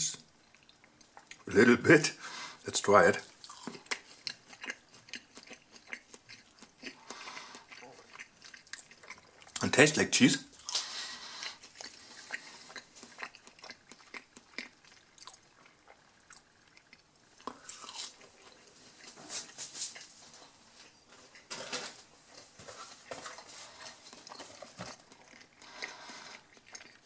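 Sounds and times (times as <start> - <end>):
person chewing crunchy food: 3.3 - 9.6, 10.6 - 21.5, 22.3 - 27.0.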